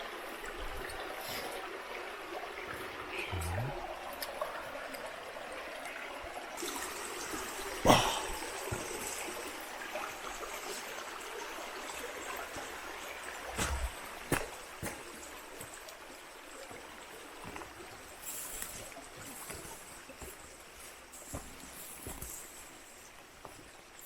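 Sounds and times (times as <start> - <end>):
hiss of water: 0.9 - 1.8, 6.6 - 24.0.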